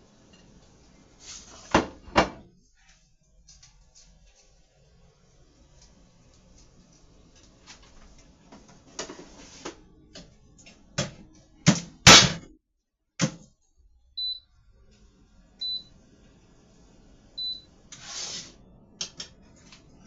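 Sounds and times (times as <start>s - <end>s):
air fryer short high beeps: 14.2s - 14.4s, 15.6s - 15.9s, 17.4s - 17.7s.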